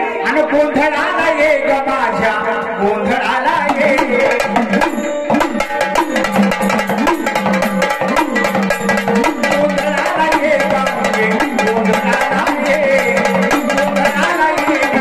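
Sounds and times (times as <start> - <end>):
paired drums in fast rhythm: 3.1 - 15.0.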